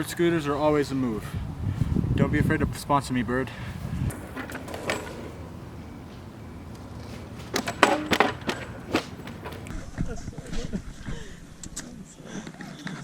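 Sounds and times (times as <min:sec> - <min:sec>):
scooter wheels rolling on pavement: 0:00.5 - 0:09.8.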